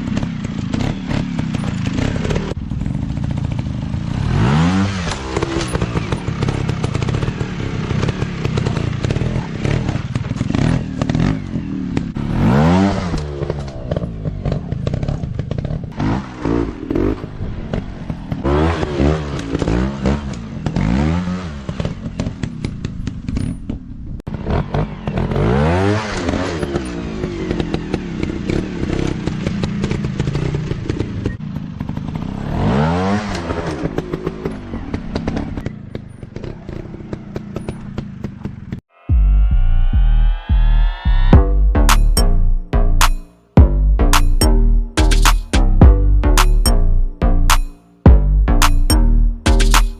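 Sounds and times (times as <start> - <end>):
dirt bike engines revving: 0.0 - 22.5.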